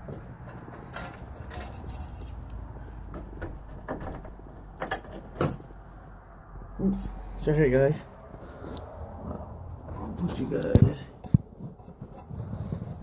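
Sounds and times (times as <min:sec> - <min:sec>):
jingling metallic rattles: 0:00.4 - 0:05.7.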